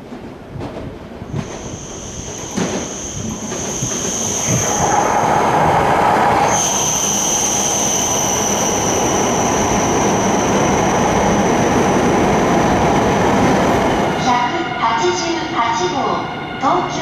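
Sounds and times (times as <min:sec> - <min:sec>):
high-pitched train whine: 0:01.3 - 0:17.0.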